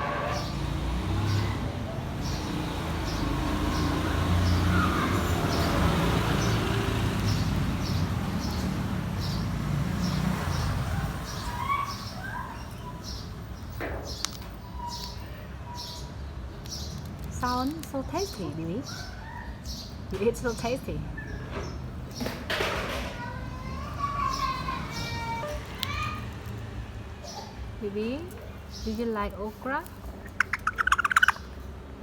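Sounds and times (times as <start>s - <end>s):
parrot chirps and whistles: 30.2s - 31.5s.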